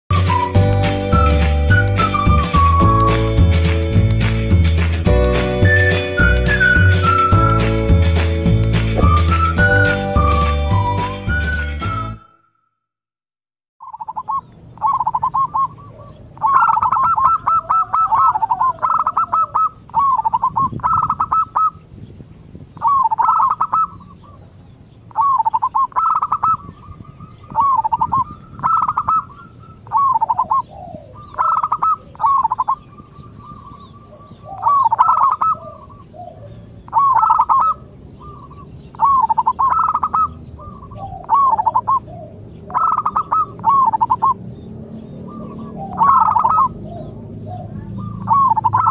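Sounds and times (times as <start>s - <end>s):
dove cooing: 13.8s - 21.8s, 22.8s - 24.5s, 25.1s - 48.9s.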